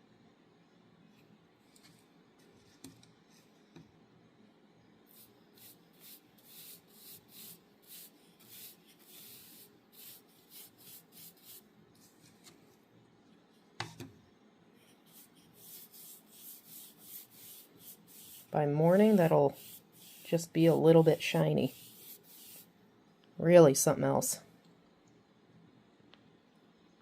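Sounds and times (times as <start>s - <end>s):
brush strokes on dry wood: 14.9s - 22.8s.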